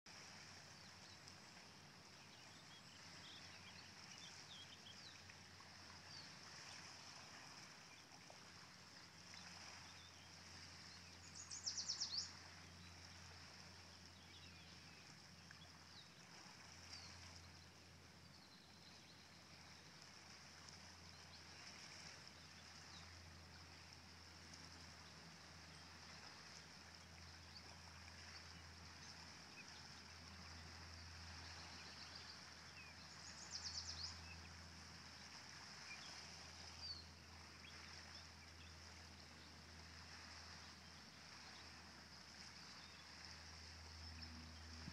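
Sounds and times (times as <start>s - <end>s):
faint low hum: 12.3s - 44.9s.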